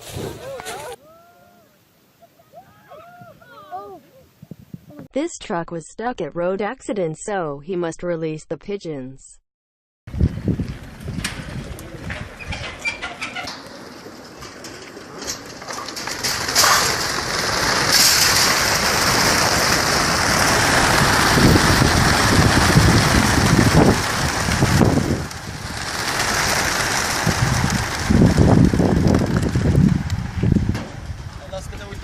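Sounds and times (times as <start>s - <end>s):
flock of pigeons wingbeats: 0.0s - 1.0s, 10.7s - 32.0s
pigeons cooing: 0.0s - 1.0s.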